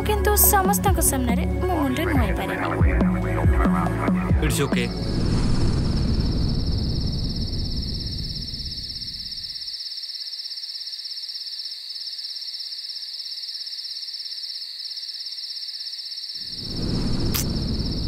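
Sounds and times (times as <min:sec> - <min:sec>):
low background music: 0:00.0 - 0:05.0
crickets trilling: 0:04.9 - 0:18.0.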